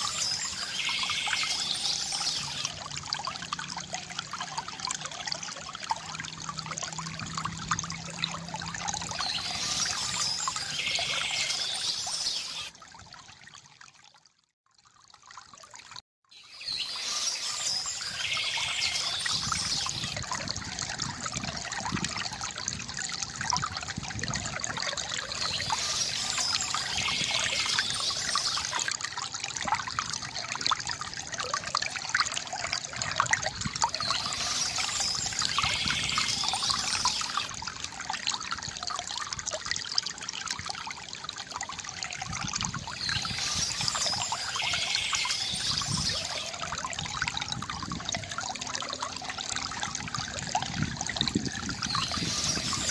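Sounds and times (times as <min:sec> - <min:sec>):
water trickling from fountain spout: 0:00.0 - 0:52.9
birds chirping: 0:42.9 - 0:46.5, 0:51.8 - 0:52.9.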